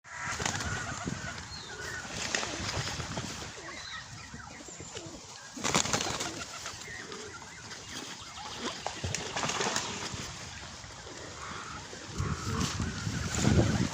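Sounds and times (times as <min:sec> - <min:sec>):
birds chirping: 0:00.1 - 0:13.9.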